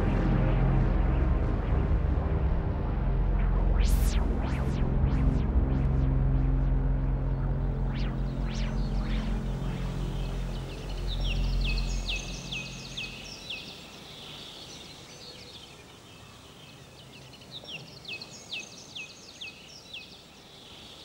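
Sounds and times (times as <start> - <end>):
music bass: 0.0 - 13.4
bird chirping: 7.4 - 21.0.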